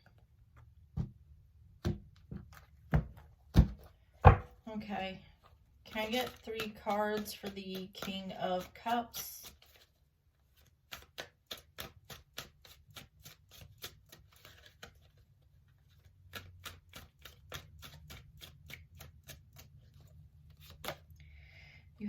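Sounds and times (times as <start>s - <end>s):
cards being shuffled: 5.9s - 21.2s.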